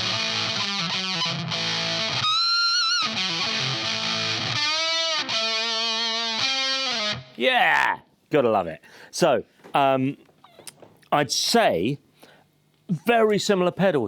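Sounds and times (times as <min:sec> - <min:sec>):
distorted fuzz electric guitar: 0:00.0 - 0:07.4.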